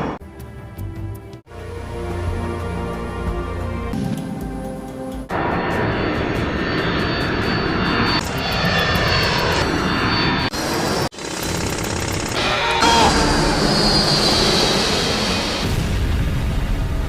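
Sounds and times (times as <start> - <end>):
dramatic music: 0.0 - 10.4, 12.4 - 16.6
jet engine roar: 5.2 - 17.0.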